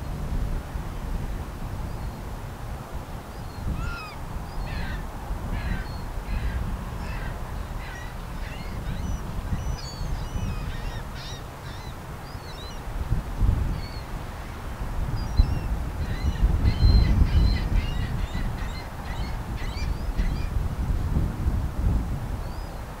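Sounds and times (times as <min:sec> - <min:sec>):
birds calling: 0:03.4 - 0:12.8, 0:15.2 - 0:20.5.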